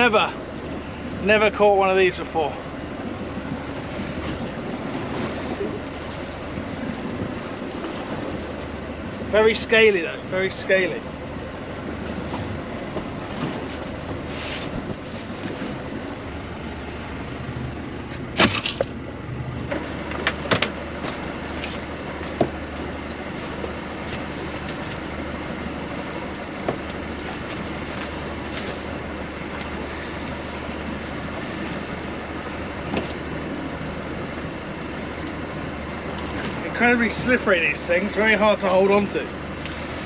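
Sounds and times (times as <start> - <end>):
boat engine humming: 0.0 - 40.0.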